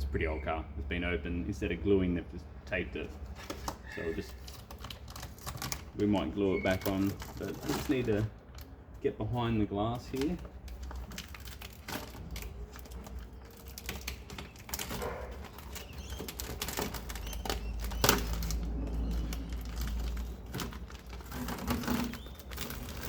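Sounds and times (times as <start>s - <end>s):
clicks taps and rustling: 9.8s - 23.0s
tape covering pulled away: 10.1s - 23.0s.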